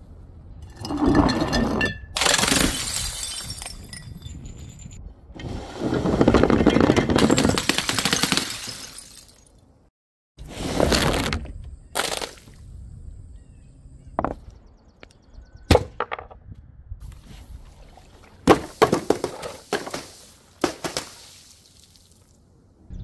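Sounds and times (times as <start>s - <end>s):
things smashing and crashing: 2.1s - 4.0s.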